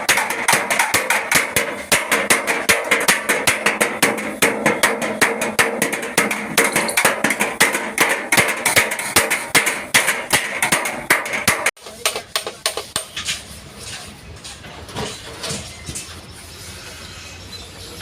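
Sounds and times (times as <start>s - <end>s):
rapid hammering on sheet metal: 0.0s - 13.4s.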